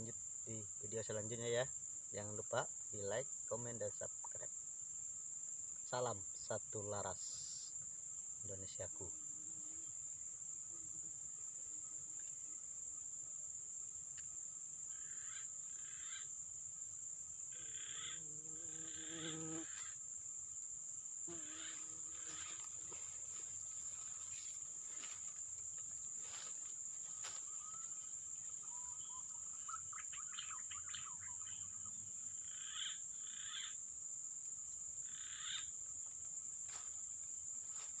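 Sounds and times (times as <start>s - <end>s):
crickets droning: 0.0s - 38.0s
short animal calls: 14.9s - 16.3s, 17.5s - 20.0s, 21.3s - 23.0s.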